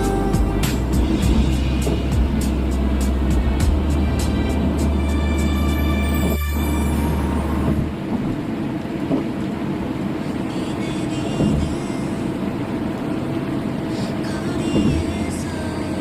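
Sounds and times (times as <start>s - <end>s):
held music tones: 0.0s - 8.1s
road and engine rumble: 0.0s - 16.0s.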